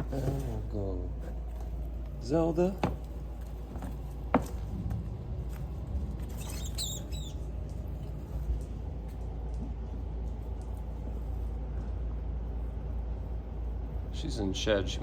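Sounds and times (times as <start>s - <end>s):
steady low hum: 0.0s - 15.0s
rat squeaking: 6.1s - 8.4s.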